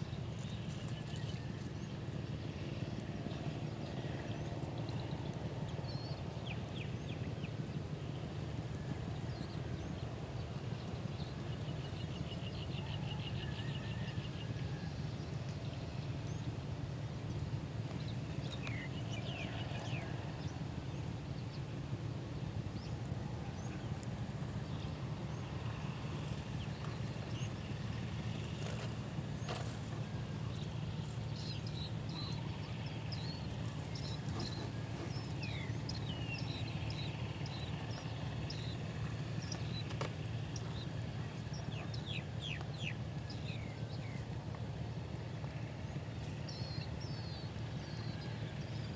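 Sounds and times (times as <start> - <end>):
small birds chirping: 26.2 - 44.2.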